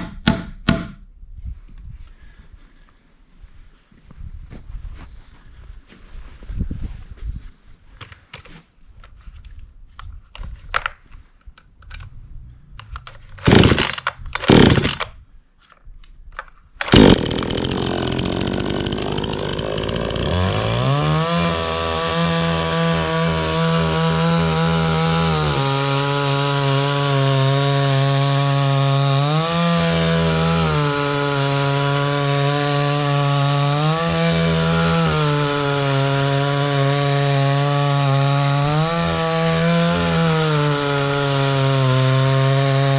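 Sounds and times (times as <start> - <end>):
starter cord pulls: 12.8 - 15.2, 16.8 - 20.4
chainsaw engine running: 13.5 - 15.1, 16.8 - 42.9.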